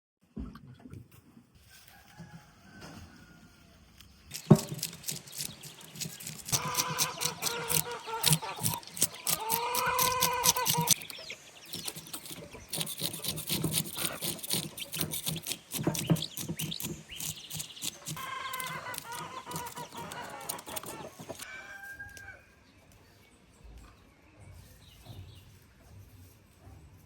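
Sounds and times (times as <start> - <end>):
rooster crow: 1.8 - 3.8, 21.4 - 22.6
clatter of knocks and scratches: 4.3 - 21.4
chickens calling: 4.3 - 21.6.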